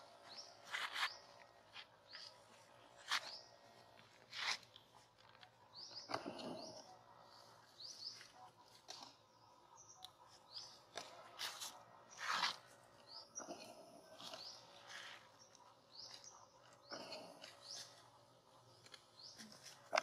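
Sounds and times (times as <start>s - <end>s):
rustling noises: 0.0s - 5.6s
small birds chirping: 0.0s - 20.0s.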